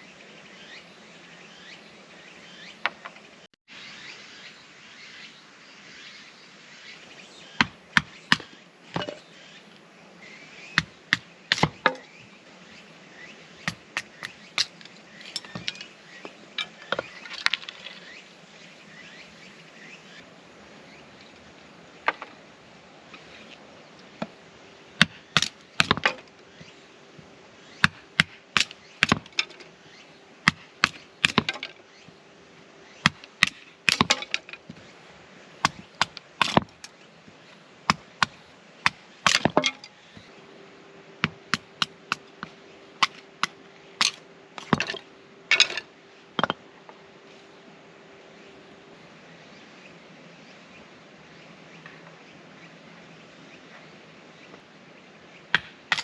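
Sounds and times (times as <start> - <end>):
firewood cracking: 33.0 - 34.7.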